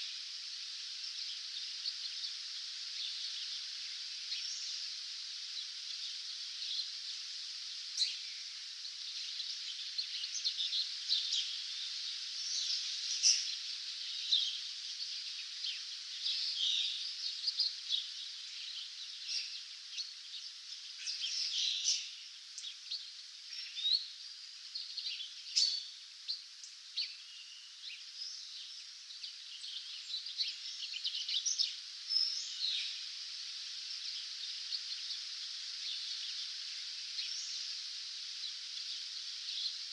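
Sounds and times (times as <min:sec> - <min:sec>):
steady high hiss: 0:00.0 - 0:39.9
birds chirping and trilling: 0:24.8 - 0:33.0.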